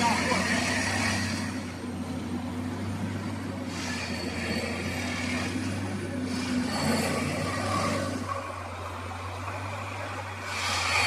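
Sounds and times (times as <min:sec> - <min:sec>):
engine drone: 0:00.0 - 0:11.0
high metallic squeals: 0:03.6 - 0:08.8.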